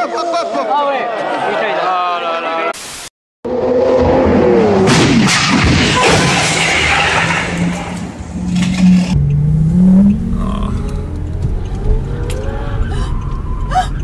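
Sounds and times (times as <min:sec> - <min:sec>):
car engine running hard: 0:07.4 - 0:14.0.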